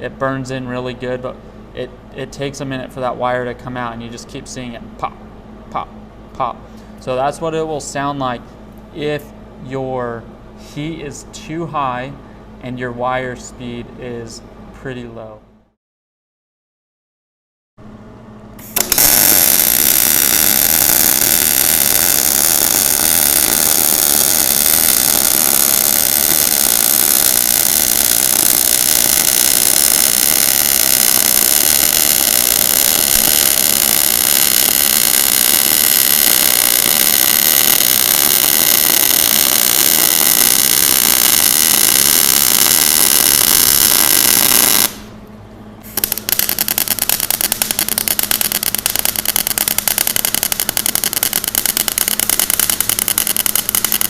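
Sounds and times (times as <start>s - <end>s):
welding arc hissing and crackling: 18.6s - 45.1s, 45.9s - 54.0s.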